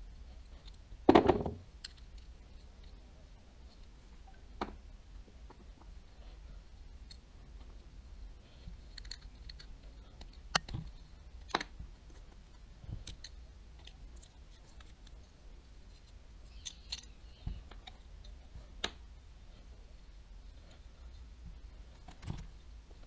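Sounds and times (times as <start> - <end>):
faint low hum: 0.0 - 23.0
small metal parts clicking: 1.8 - 2.7, 8.7 - 11.7, 13.0 - 15.2, 16.0 - 18.4.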